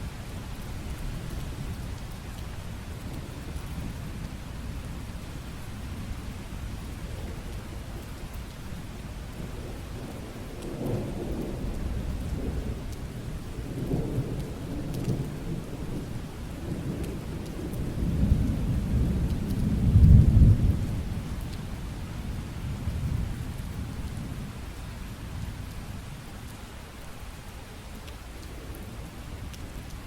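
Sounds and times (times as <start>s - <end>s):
rain falling: 0.0s - 30.0s
rolling thunder: 9.4s - 21.3s.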